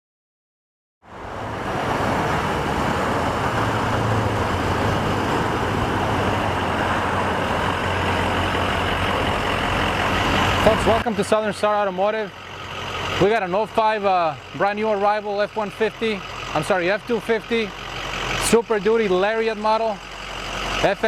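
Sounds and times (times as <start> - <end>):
diesel engine idling: 1.1 - 21.0.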